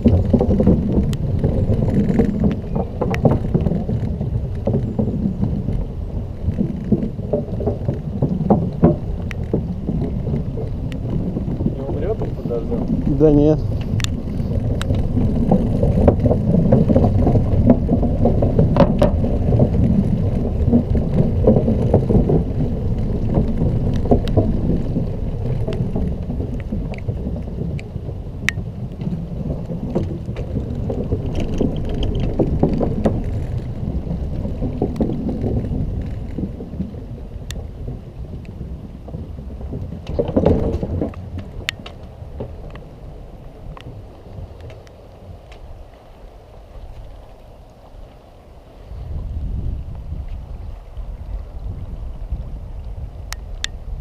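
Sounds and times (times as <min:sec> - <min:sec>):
sharp clicks and knocks: 0:00.0 - 0:37.7, 0:38.3 - 0:42.8
road vibration rumble: 0:00.0 - 0:54.0
wind rumble: 0:00.0 - 0:54.0.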